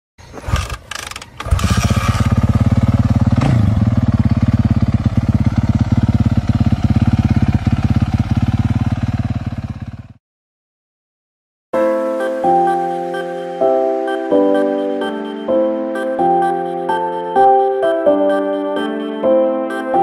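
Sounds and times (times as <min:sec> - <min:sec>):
dirt bike engine idling: 0:00.5 - 0:10.2.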